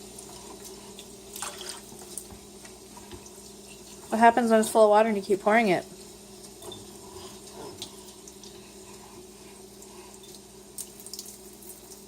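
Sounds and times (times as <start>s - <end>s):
small ticks and splashes: 0.3s - 2.4s, 9.8s - 12.0s.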